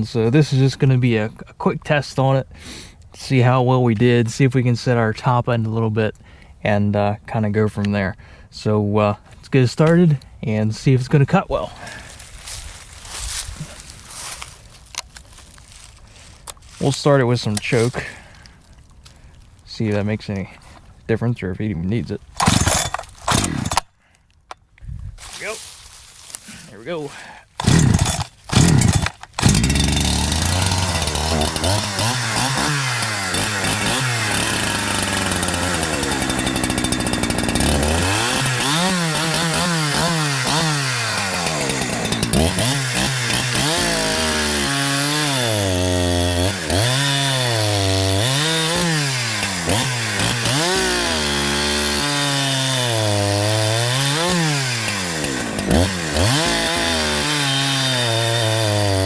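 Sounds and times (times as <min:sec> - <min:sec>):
chainsaw engine revving: 0:22.4 - 0:23.9, 0:27.6 - 0:59.0.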